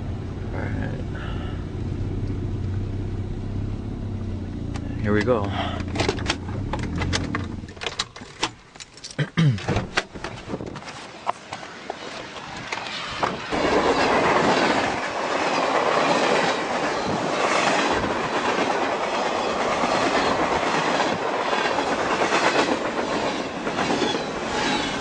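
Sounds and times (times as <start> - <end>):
clickety-clack of wheels: 10.0 - 25.0
train rushing on rails: 11.1 - 25.0.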